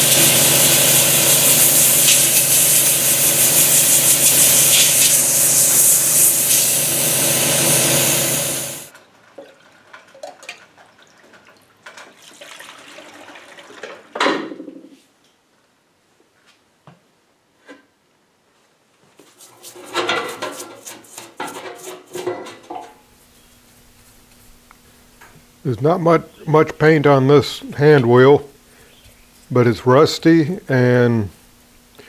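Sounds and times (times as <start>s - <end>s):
loud hissing spray: 0.0s - 8.9s
motor hum: 0.0s - 8.9s.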